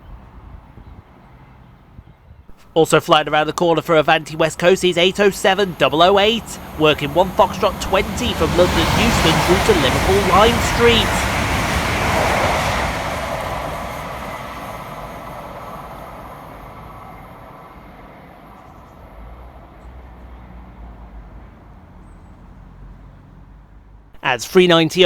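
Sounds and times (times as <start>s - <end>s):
electric train passing at speed: 2.6s - 22.0s.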